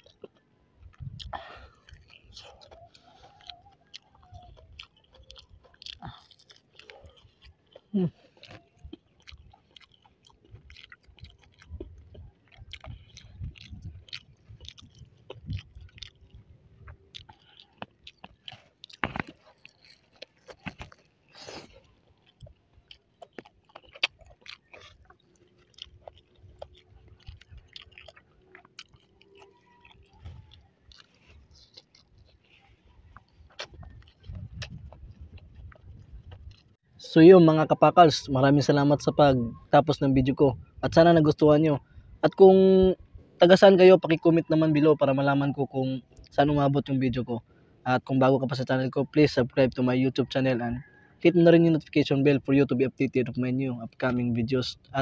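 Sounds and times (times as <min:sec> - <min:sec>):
wet mouth clicks: 0:00.0 - 0:36.7
crunchy chewing and biting: 0:00.0 - 0:37.1.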